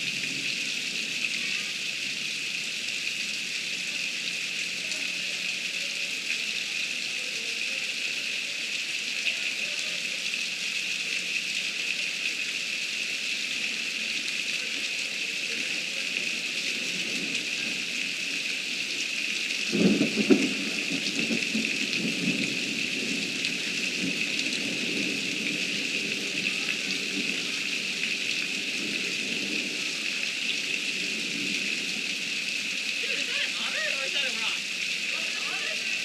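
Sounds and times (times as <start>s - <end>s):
heavy rain: 0.0s - 36.0s
thunder crack and rumble: 19.7s - 30.0s.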